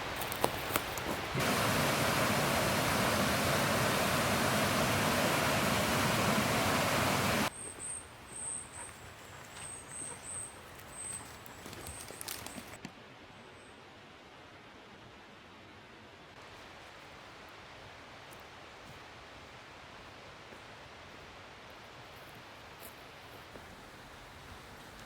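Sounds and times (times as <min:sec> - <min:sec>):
loud steady rushing noise: 0:01.3 - 0:07.5.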